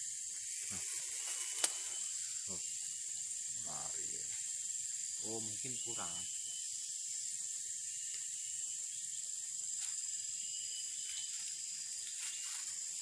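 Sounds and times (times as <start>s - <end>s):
insect chorus drone: 0.0s - 13.0s
faint clicks: 0.7s - 1.9s.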